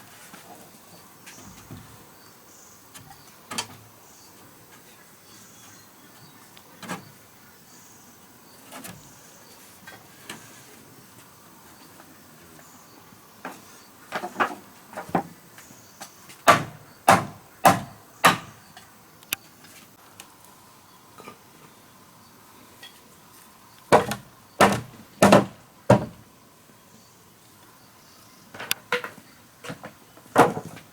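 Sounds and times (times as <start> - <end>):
hand tool striking wood: 16.4 - 18.6, 23.9 - 26.2.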